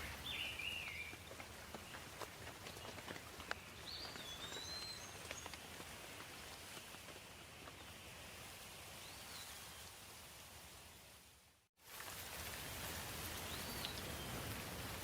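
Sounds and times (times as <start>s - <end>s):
light rain: 5.4s - 15.0s.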